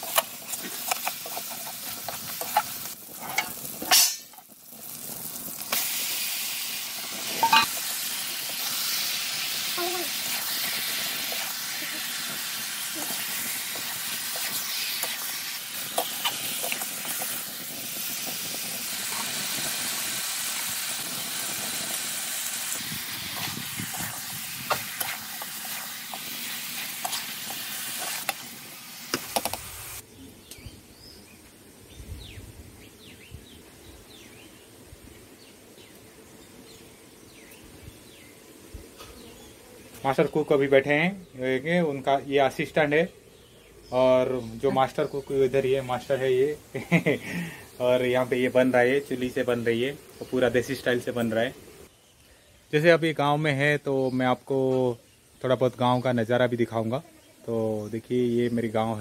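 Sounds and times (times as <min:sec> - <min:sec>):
curry sizzling in a pan: 0:00.0 - 0:30.0, 0:41.5 - 0:51.9
metal spatula scraping a pan: 0:07.3 - 0:07.8.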